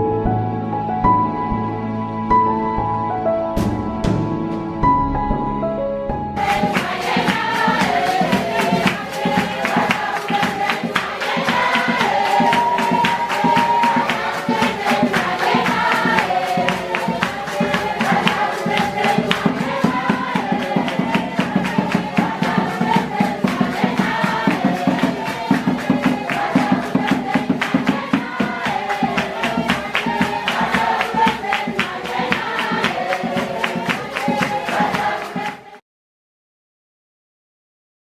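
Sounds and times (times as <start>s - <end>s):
quick percussive beat: 6.3s - 35.8s
group singing in chorus: 6.4s - 35.8s.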